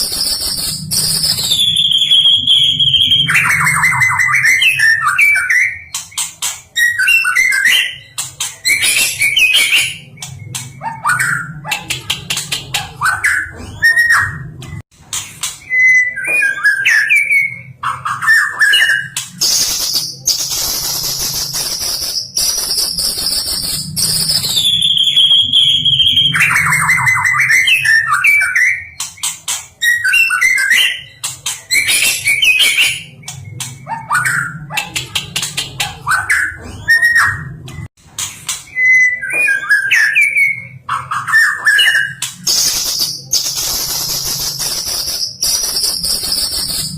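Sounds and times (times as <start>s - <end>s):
bird singing whistled phrases: 0.0s - 5.9s, 15.7s - 29.0s, 38.7s - 46.9s.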